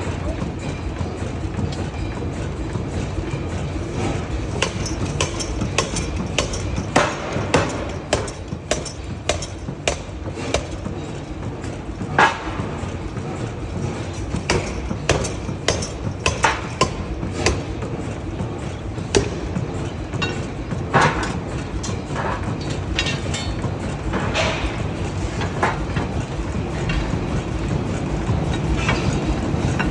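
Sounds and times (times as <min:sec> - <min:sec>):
low machine rumble: 0:00.0 - 0:21.9
metal clanks and knocks: 0:00.6 - 0:27.5.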